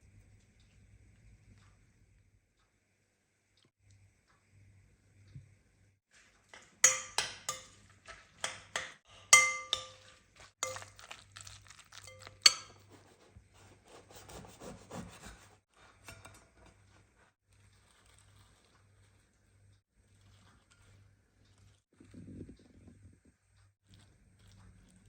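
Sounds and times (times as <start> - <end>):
dishes clinking: 6.6 - 12.8.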